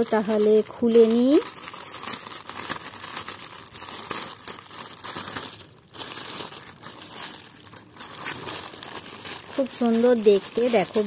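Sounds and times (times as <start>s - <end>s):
packaging crinkling and rustling: 0.0s - 11.0s
packaging tearing: 0.0s - 11.0s.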